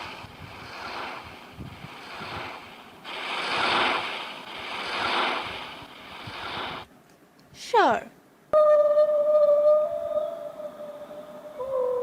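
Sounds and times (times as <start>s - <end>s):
sea surf washing in: 0.0s - 6.9s
wind: 0.0s - 12.0s.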